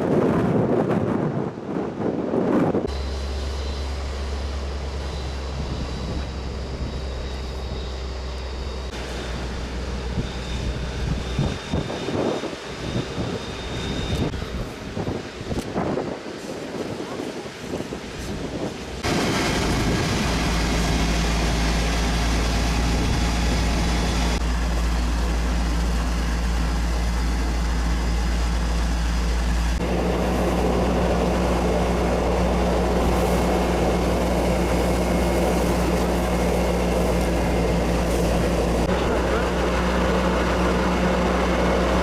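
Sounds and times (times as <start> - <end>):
engine running: 2.7 - 42.0
loud rushing noise: 8.9 - 24.5.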